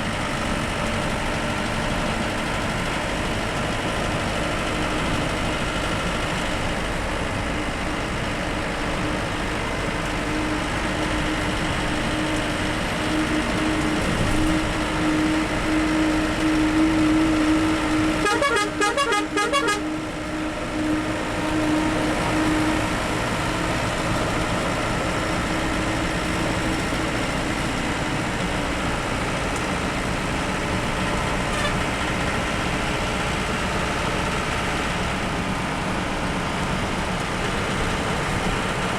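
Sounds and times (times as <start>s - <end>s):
bus engine and road noise: 0.0s - 38.9s
vehicle horn pulses: 10.2s - 23.0s, 31.5s - 31.8s.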